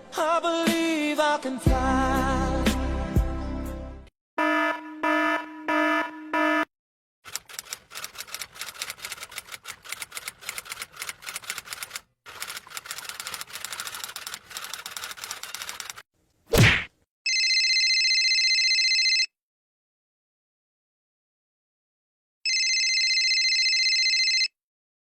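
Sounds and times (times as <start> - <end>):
fast irregular clicking: 7.3 - 16.0.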